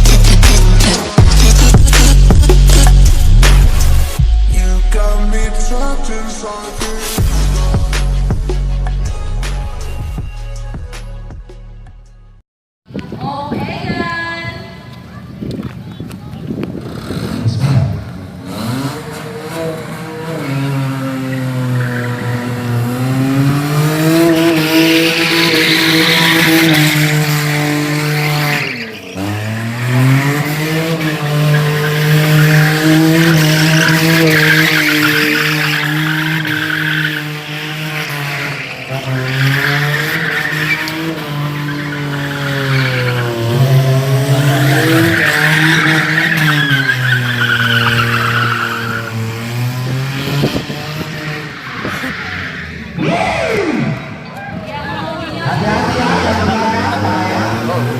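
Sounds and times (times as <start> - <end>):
car engine at high revs: 0.0 - 4.2, 16.7 - 54.5, 55.4 - 57.9.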